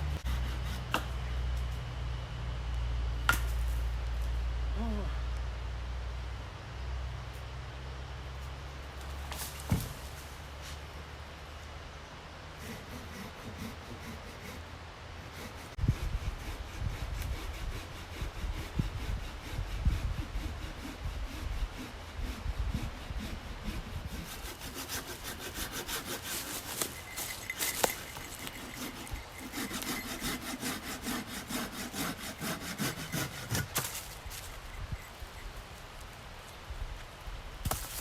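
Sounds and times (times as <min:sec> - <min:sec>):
hand saw cutting wood: 0:00.2 - 0:01.2, 0:12.6 - 0:35.1.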